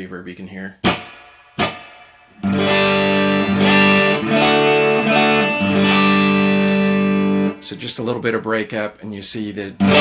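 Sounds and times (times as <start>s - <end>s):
electric guitar strumming chords: 0.8s - 7.8s, 9.8s - 10.0s.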